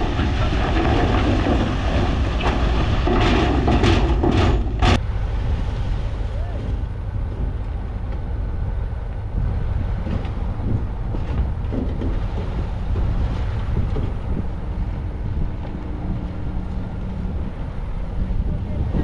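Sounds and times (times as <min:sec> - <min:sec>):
machinery knocks and clatter: 0:00.0 - 0:05.0, 0:06.6 - 0:08.3, 0:09.4 - 0:17.1
heavy diesel machinery engine rumble: 0:00.0 - 0:19.0.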